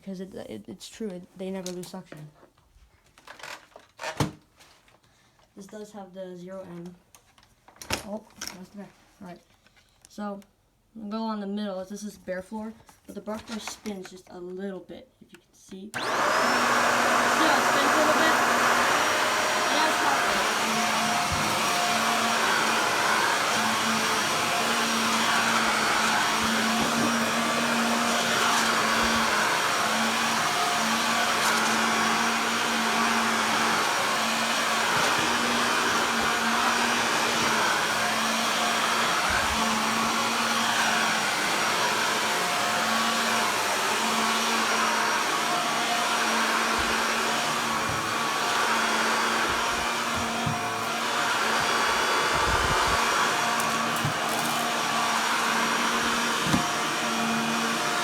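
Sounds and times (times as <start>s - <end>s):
vacuum cleaner running: 16.0s - 58.0s.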